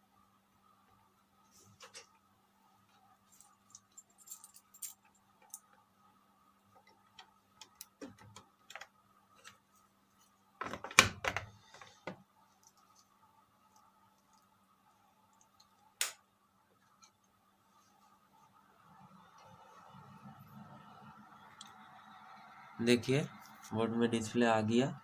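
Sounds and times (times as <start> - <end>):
faint electrical hum: 0.0 - 25.0
hands handling computer parts: 10.6 - 13.1.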